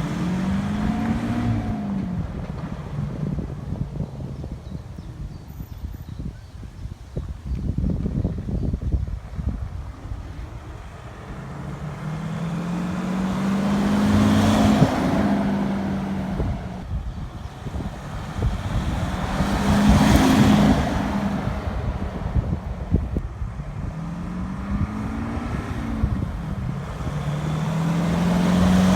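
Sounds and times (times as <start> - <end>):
wind noise on microphone: 0.0 - 28.9
pickup truck driving past: 9.5 - 28.9.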